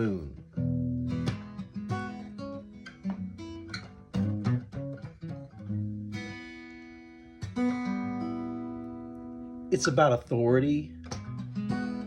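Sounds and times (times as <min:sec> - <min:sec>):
guitar playing blues: 0:00.0 - 0:12.0.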